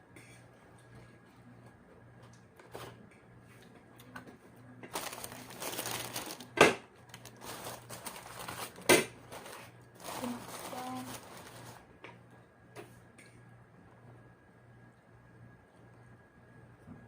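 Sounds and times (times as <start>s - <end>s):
food packaging crinkling: 4.9s - 12.0s.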